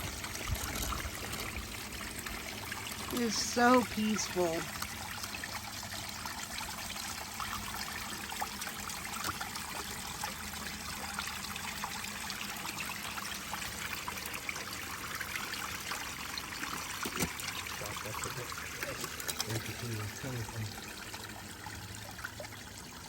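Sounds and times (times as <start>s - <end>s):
droplets pattering: 0.0s - 4.9s, 16.6s - 21.2s
small waterfall splashing: 0.0s - 23.0s.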